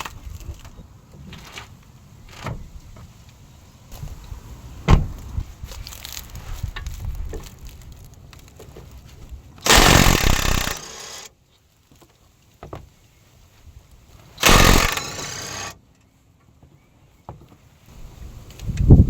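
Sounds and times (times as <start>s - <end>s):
impact wrench burst: 9.6s - 11.3s, 14.4s - 15.8s.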